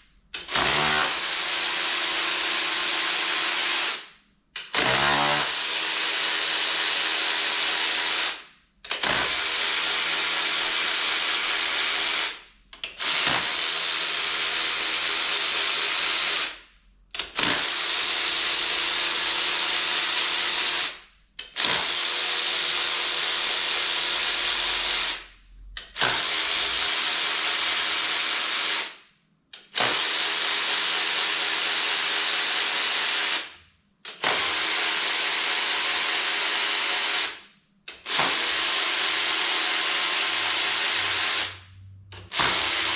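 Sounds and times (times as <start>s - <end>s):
power tool running: 0.4s - 16.6s, 17.2s - 25.2s, 29.7s - 33.5s, 34.1s - 42.9s.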